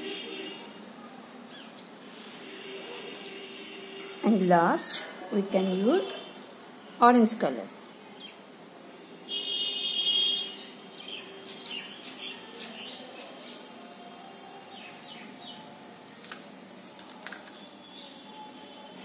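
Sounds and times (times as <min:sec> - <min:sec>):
birds chirping: 0:01.5 - 0:07.4, 0:08.0 - 0:13.7.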